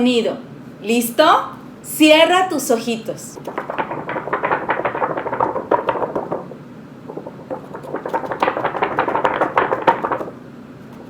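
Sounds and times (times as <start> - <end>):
book cover crackling rattle: 3.4 - 11.0.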